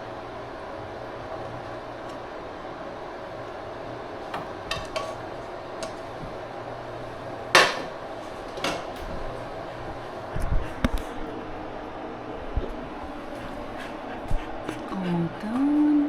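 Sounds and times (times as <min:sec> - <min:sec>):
dishes and utensils clinking: 0:04.4 - 0:05.2.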